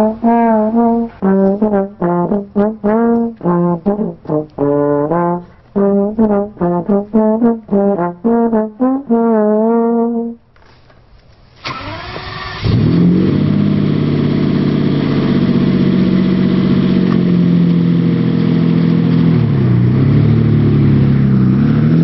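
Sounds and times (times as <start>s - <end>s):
sports car engine starting and revving: 11.6s - 22.0s.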